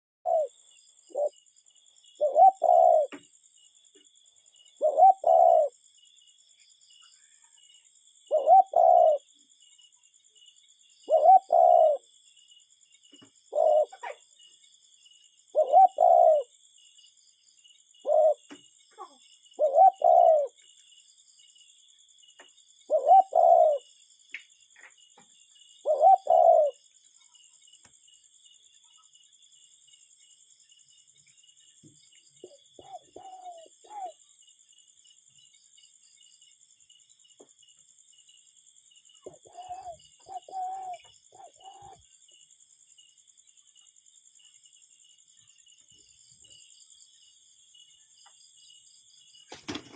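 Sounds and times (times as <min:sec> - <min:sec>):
cuckoo calling: 0:00.2 - 0:00.5, 0:01.1 - 0:01.3, 0:02.2 - 0:03.2, 0:04.8 - 0:05.8, 0:08.3 - 0:09.3, 0:11.0 - 0:12.1, 0:13.5 - 0:14.2, 0:15.5 - 0:16.5, 0:18.0 - 0:20.6, 0:22.9 - 0:23.8, 0:25.8 - 0:26.8, 0:32.4 - 0:34.2, 0:39.3 - 0:42.0.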